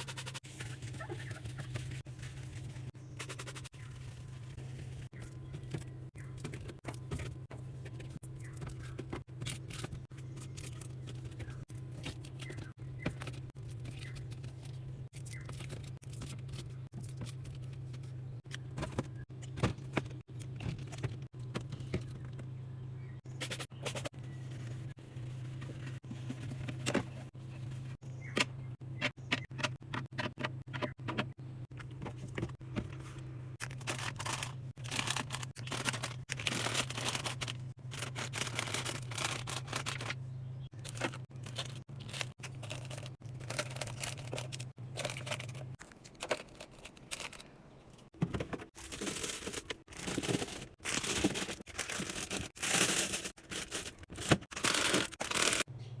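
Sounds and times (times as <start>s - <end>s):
plastic packaging crinkling: 33.6s - 47.5s, 48.7s - 55.7s.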